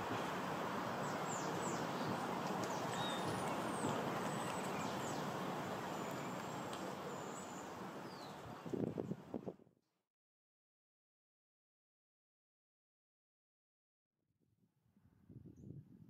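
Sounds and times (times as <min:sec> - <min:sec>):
outdoor background rush: 0:00.0 - 0:09.6
faint high bird chirps: 0:02.7 - 0:05.2.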